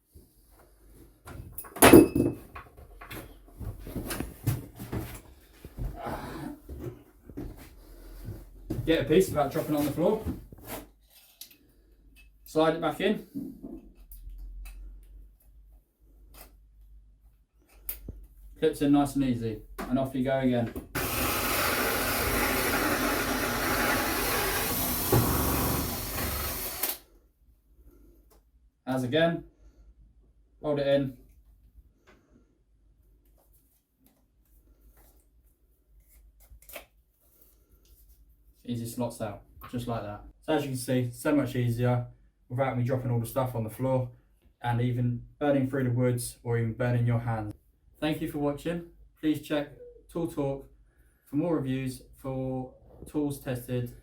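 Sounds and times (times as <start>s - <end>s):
power drill cutting through wood: 21.0s - 27.0s.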